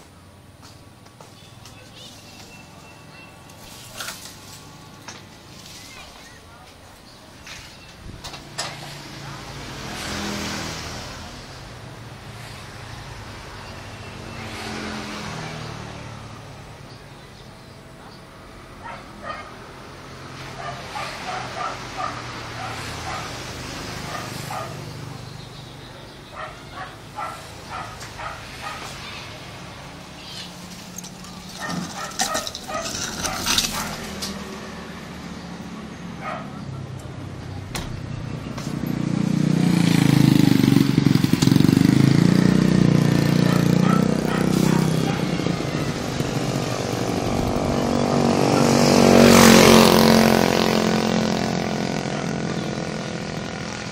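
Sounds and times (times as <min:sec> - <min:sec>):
vehicles passing by: 0:00.0 - 0:53.9
dog barking: 0:18.8 - 0:19.6, 0:20.5 - 0:23.4, 0:24.0 - 0:24.9, 0:26.3 - 0:29.0, 0:31.6 - 0:34.0, 0:36.2 - 0:36.7, 0:43.4 - 0:46.1, 0:48.4 - 0:48.8
sharp knocks and clatters: 0:30.7 - 0:34.4.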